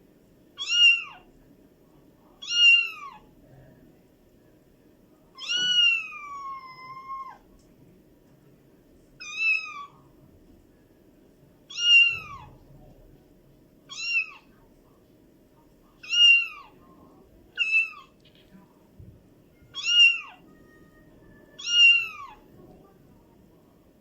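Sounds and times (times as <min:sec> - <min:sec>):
kitten meowing: 0:00.6 - 0:01.2, 0:02.4 - 0:03.2, 0:05.4 - 0:07.4, 0:09.2 - 0:09.9, 0:11.7 - 0:12.6, 0:13.9 - 0:14.5, 0:16.0 - 0:16.7, 0:17.6 - 0:18.1, 0:19.7 - 0:21.0, 0:21.6 - 0:22.4.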